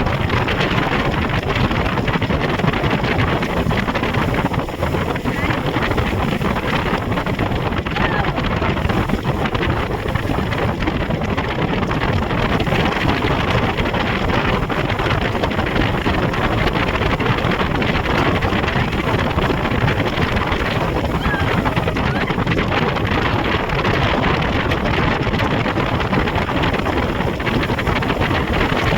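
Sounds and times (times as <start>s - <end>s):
rushing water: 0.0s - 28.9s
speedboat engine: 0.0s - 28.9s
wind buffeting microphone: 0.0s - 28.9s.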